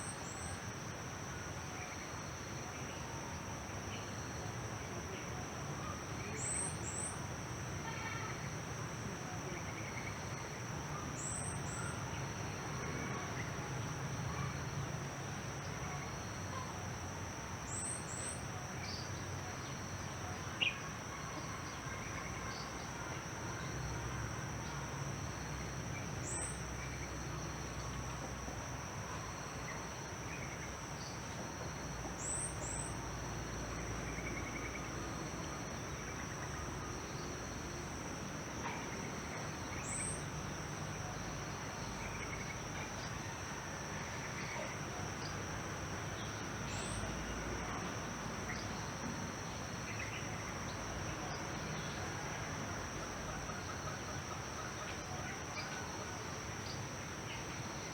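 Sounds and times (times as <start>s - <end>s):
insects droning: 0.0s - 57.9s.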